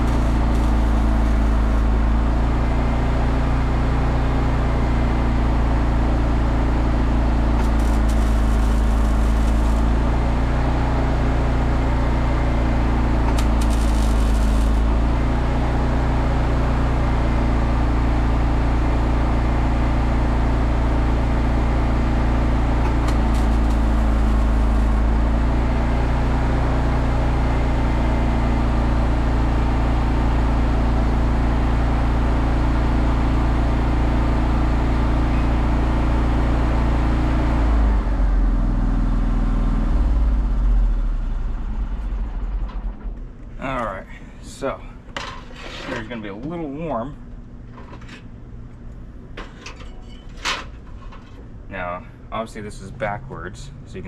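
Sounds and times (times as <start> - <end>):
crackling bursts of welding: 0.0 - 2.0, 7.5 - 10.4, 13.0 - 15.5, 22.9 - 25.2
welding machine humming: 0.0 - 3.5, 5.9 - 17.4, 20.9 - 27.8.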